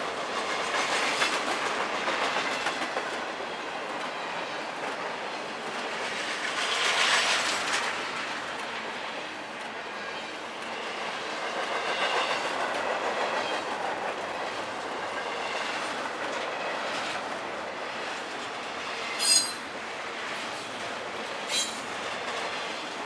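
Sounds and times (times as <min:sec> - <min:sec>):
freight train rumbling: 0:00.0 - 0:23.0
high-pitched wheel squeals: 0:19.2 - 0:19.6, 0:21.5 - 0:21.8.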